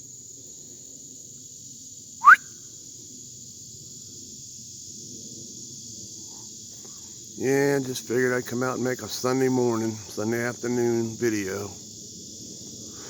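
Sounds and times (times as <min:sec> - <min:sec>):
insects trilling: 0:00.0 - 0:13.0
bird rising whistle: 0:02.2 - 0:02.5.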